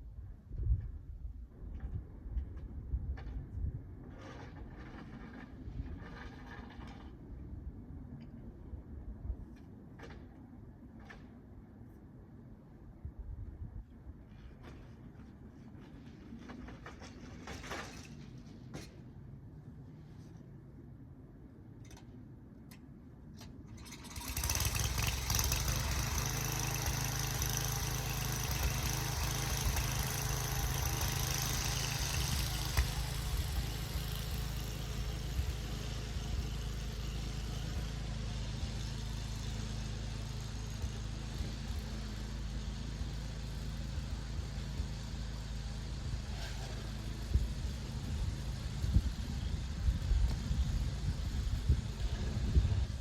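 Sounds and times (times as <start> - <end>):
engine running: 23.7 - 53.0.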